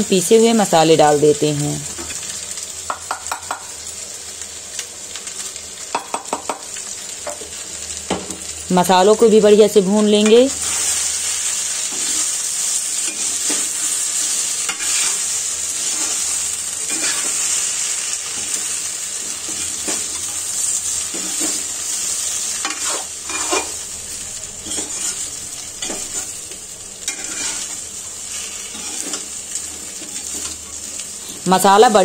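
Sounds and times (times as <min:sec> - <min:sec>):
food sizzling in oil: 0:00.0 - 0:32.0
metal spatula scraping pan: 0:16.9 - 0:17.5, 0:22.6 - 0:23.8, 0:24.6 - 0:25.2, 0:27.1 - 0:30.7.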